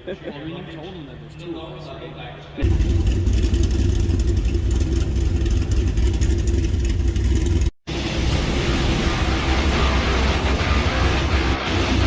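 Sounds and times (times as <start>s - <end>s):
low car rumble: 2.6s - 11.5s
vehicle driving rumble: 2.6s - 12.0s.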